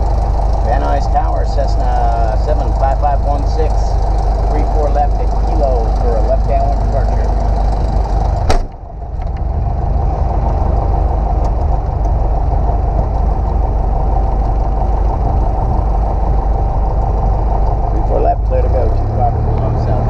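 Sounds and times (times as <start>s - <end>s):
light aircraft engine droning: 0.0s - 20.0s.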